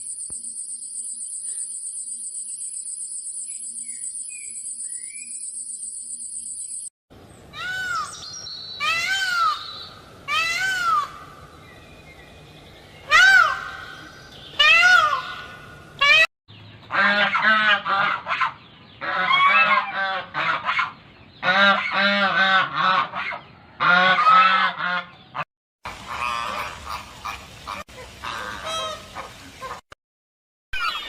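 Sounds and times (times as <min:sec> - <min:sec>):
waterfowl calling: 0:25.9 - 0:29.8.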